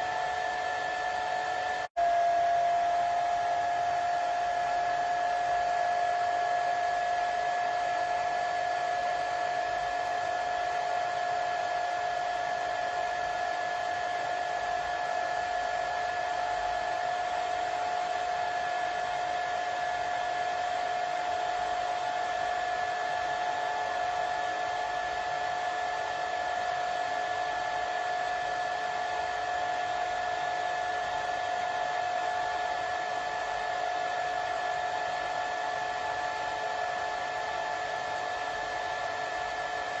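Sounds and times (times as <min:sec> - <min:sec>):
hair dryer running: 0:00.0 - 0:40.0.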